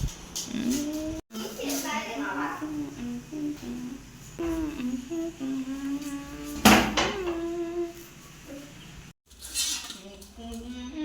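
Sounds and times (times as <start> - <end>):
person humming: 0.4 - 1.2, 2.6 - 8.1.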